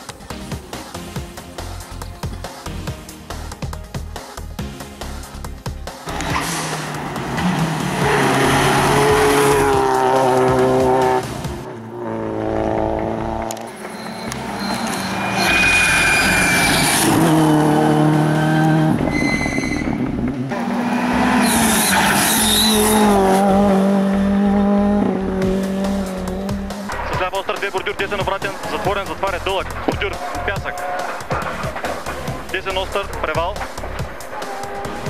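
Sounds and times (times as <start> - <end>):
rally car engine at high revs: 6.1 - 15.4, 16.0 - 27.0.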